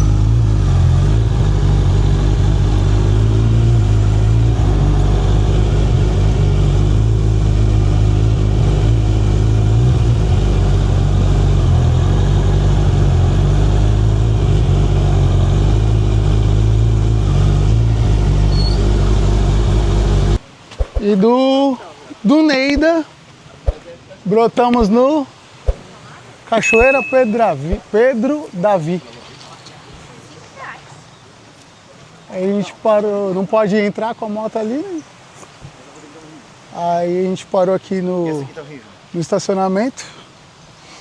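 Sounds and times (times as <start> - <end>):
motorcycle engine drone: 0.0 - 20.4.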